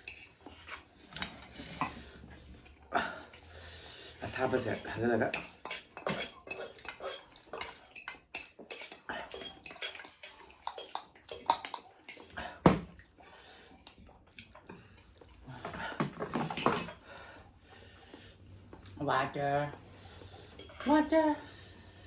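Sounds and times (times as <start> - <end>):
utensils and dishes clattering: 0.0 - 2.2, 4.3 - 12.9, 15.6 - 17.0, 20.5 - 21.3.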